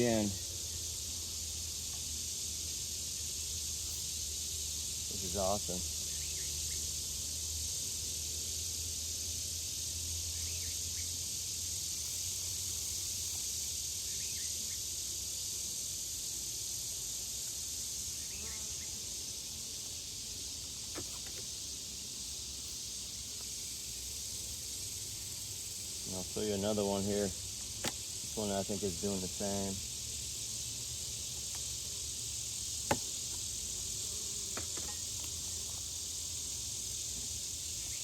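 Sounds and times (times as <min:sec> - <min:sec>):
honeybees humming: 0:00.0 - 0:38.0.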